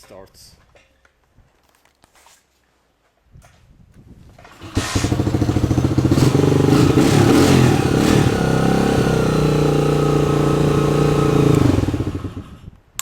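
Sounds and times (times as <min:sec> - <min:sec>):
dirt bike engine starting and revving: 0:04.4 - 0:12.8.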